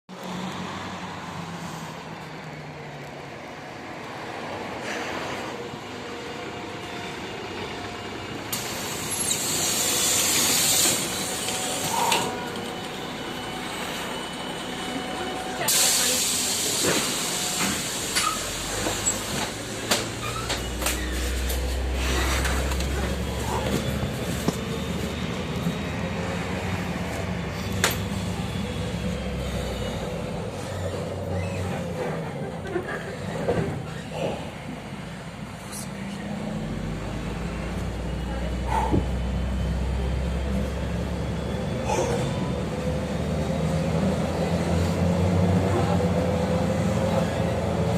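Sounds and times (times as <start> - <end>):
bus engine running: 0.1 - 47.9
compressed air hiss: 8.6 - 12.2.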